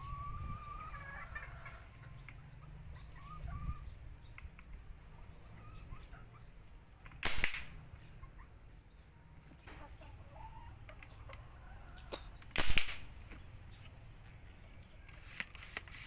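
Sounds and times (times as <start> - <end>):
pipe gun bangs: 7.2 - 7.8, 12.5 - 13.2.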